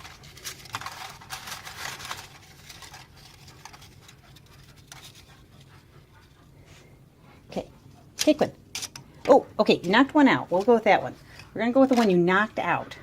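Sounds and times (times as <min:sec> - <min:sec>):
paper rustling: 0:00.0 - 0:05.7.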